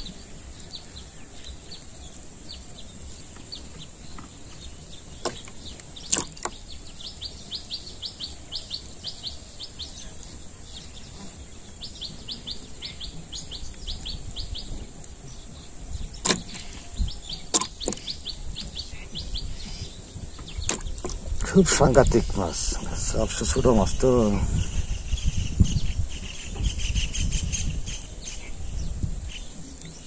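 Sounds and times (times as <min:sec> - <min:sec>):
bird chirping: 0:00.0 - 0:30.0
sharp clicks: 0:05.1 - 0:07.0, 0:16.2 - 0:18.8.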